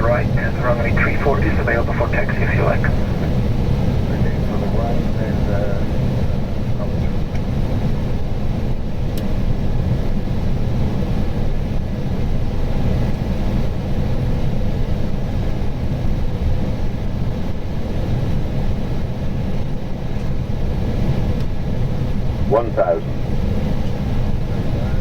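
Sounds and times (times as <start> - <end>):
cockpit airflow noise: 0.0 - 7.6.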